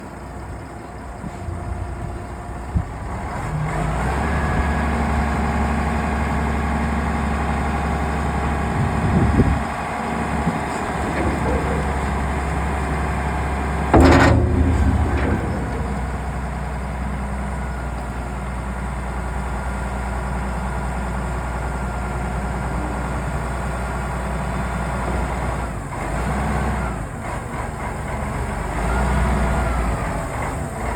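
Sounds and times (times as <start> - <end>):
machine engine running: 10.1 - 17.3.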